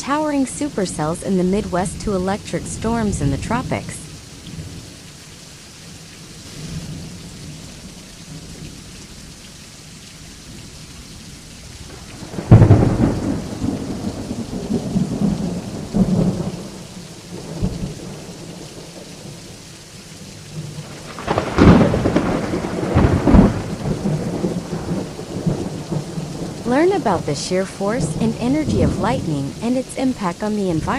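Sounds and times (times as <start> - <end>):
steady rain: 0.0 - 30.9
thunder cracks and rumbles: 11.9 - 19.3, 20.6 - 27.3, 28.0 - 29.6.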